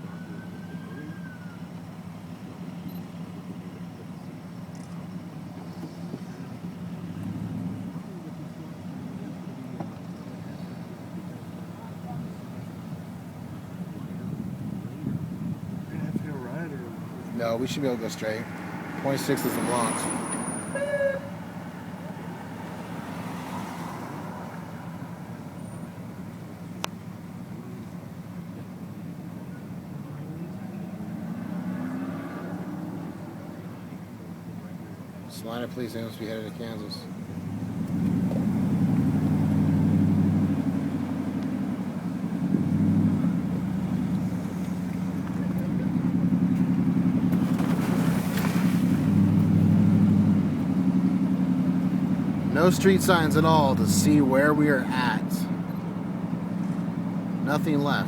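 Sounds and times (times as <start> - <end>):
car hum from inside cabin: 0.0 - 58.0.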